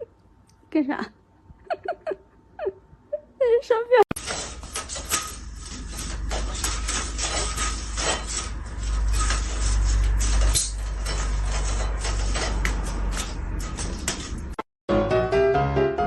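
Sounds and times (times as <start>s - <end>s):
clicks knocks and clatter: 4.1s - 14.6s.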